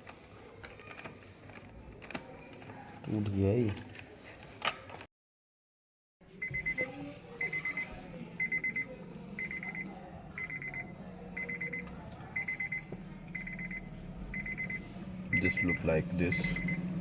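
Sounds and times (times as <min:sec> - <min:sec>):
low steady hum: 0:06.5 - 0:17.0.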